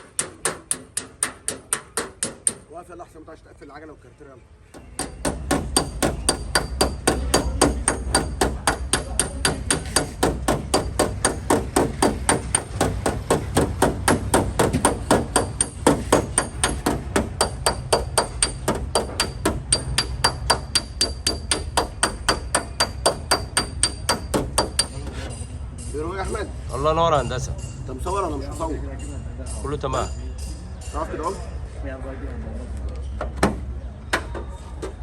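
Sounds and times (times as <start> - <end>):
hammer tapping on sheet metal: 0.0 - 2.8, 4.7 - 26.4.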